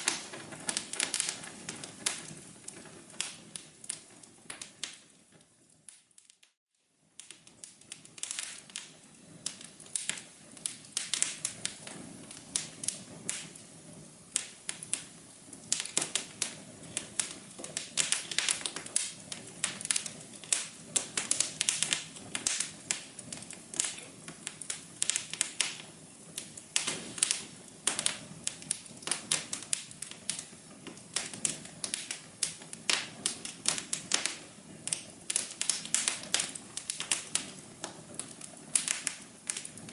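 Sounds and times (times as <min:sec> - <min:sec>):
low steady hiss: 0:00.0 - 0:39.9
wood fire crackling: 0:00.0 - 0:39.9.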